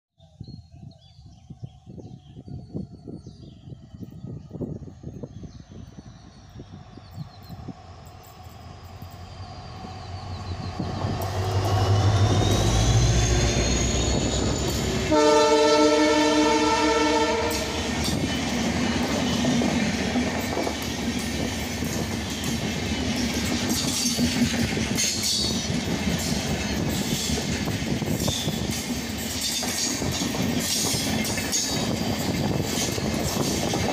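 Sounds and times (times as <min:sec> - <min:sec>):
locomotive engine rumble: 0:03.6 - 0:33.9
train horn chord: 0:15.0 - 0:17.9
train wheels clattering over rail joints: 0:17.9 - 0:33.9.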